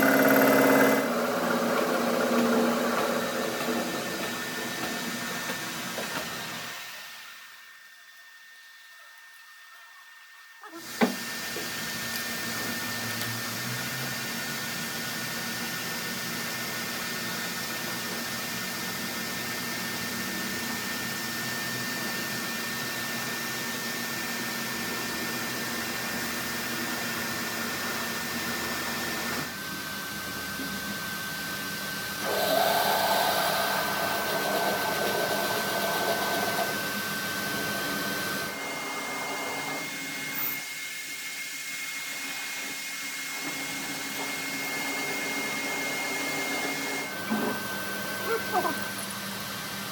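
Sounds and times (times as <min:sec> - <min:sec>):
electric motor whirring: 0:00.0 - 0:06.7, 0:32.2 - 0:40.7.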